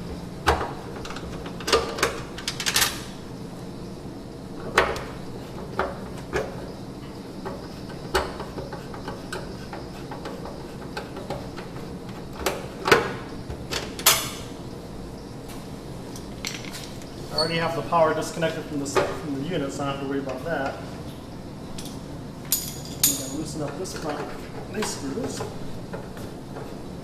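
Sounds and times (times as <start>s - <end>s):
hands and tools clicking and knocking: 7.4s - 13.1s.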